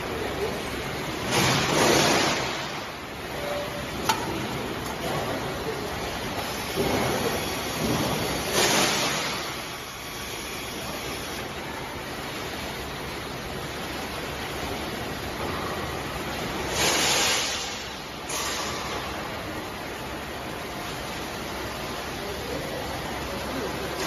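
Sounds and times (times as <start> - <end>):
welding hiss: 5.6 - 11.6.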